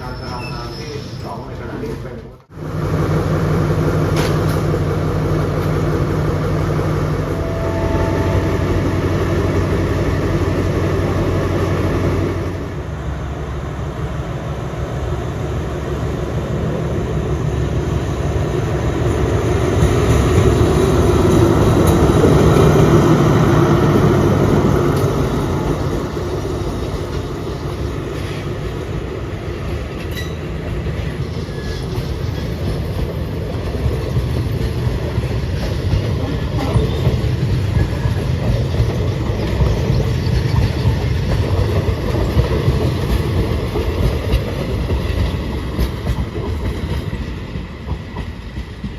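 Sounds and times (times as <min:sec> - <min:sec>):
train rumbling past: 0:00.0 - 0:48.9
wheels clicking over rail joints: 0:23.7 - 0:48.9.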